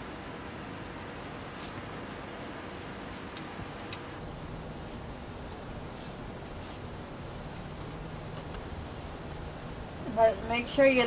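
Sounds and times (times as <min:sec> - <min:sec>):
steady background hiss: 0:00.0 - 0:11.0
small bird chirping: 0:04.2 - 0:11.0.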